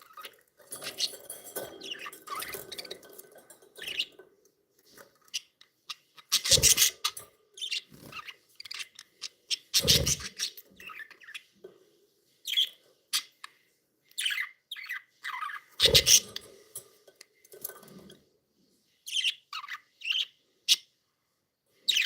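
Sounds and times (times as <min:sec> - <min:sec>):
budgerigars chirping: 0:05.2 - 0:11.5, 0:14.2 - 0:16.3.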